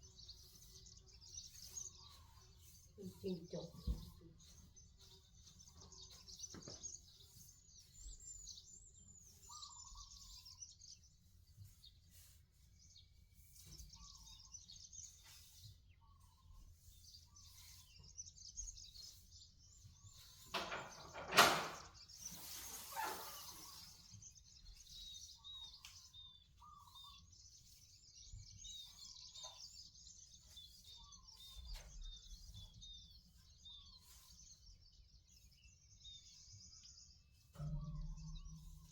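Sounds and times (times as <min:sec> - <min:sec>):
small birds chirping: 0:00.0 - 0:38.9
rustling clatter: 0:20.1 - 0:24.1.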